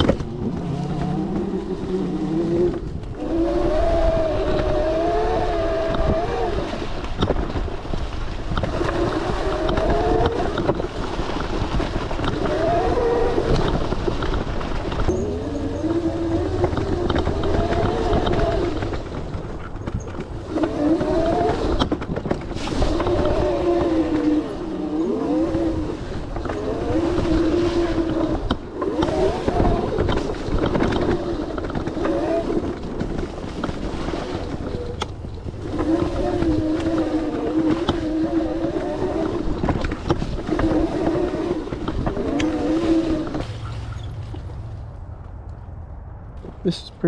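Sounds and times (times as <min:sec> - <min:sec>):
knocks from rough trail: 0:39.2 - 0:46.6.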